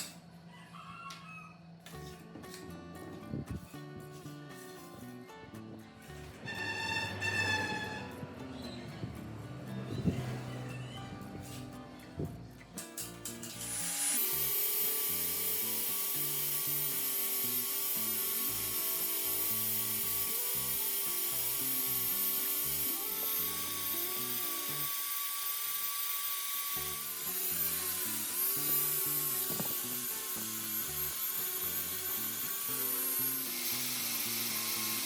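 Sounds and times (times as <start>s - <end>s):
electric power tool whining: 13.2s - 35.0s.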